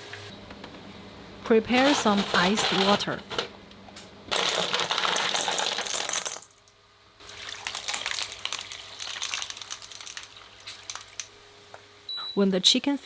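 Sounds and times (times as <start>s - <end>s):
ice cubes clinking: 1.8s - 3.2s, 4.3s - 6.6s
water pouring onto ice: 7.2s - 11.3s.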